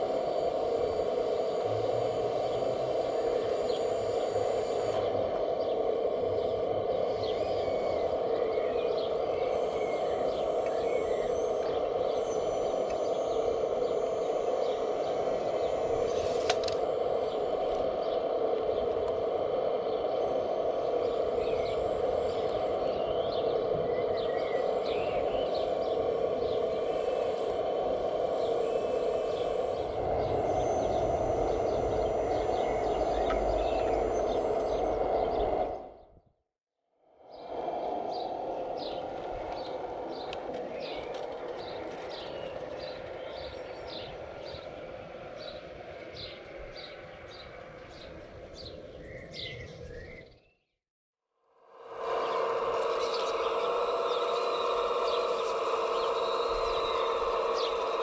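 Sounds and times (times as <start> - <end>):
steady mechanical hum: 0.0 - 36.2, 37.1 - 50.4, 51.5 - 58.0
faint bird chirps: 0.1 - 36.1, 51.8 - 58.0.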